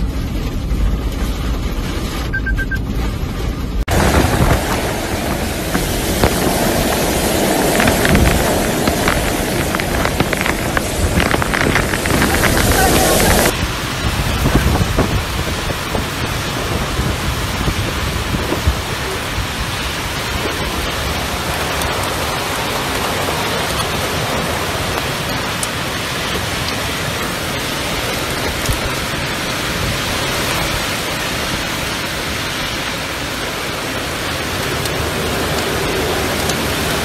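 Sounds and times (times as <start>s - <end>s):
low rumble: 0.0s - 25.3s
heavy rain pouring: 0.0s - 37.0s.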